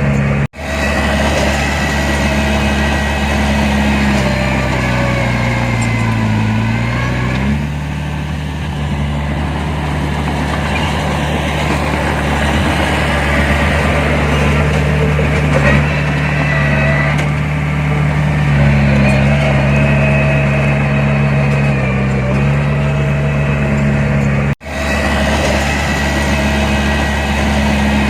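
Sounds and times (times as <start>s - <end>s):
heavy diesel engine running: 0.0s - 28.0s.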